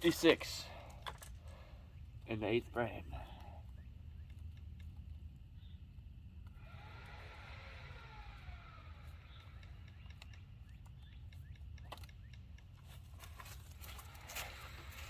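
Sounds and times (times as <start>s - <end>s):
small clicks and knocks: 9.3s - 14.6s.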